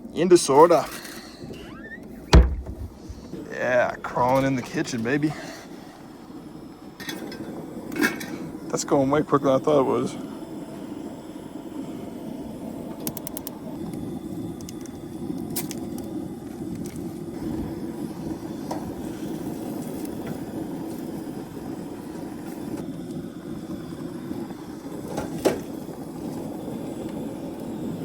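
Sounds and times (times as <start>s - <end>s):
camp stove burner rushing: 0.0s - 28.0s
steak frying: 12.8s - 28.0s.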